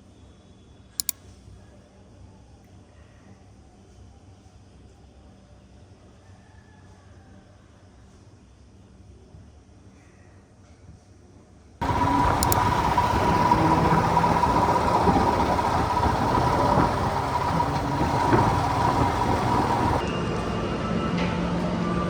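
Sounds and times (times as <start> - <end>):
vehicle running with whine: 11.8 - 20.0.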